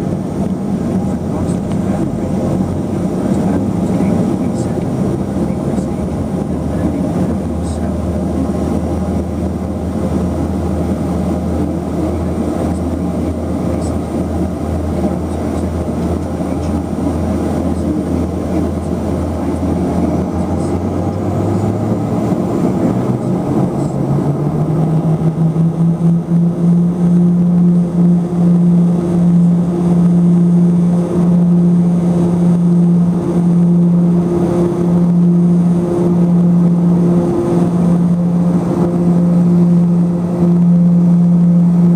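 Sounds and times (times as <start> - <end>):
turboprop engines droning in cabin: 0.0 - 41.9.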